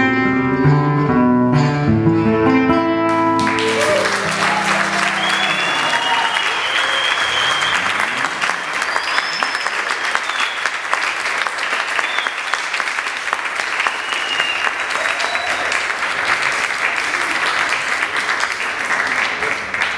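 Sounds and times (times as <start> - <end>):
audience applauding: 3.1 - 19.9
high whistles: 3.7 - 10.8, 11.7 - 12.7, 13.8 - 15.6.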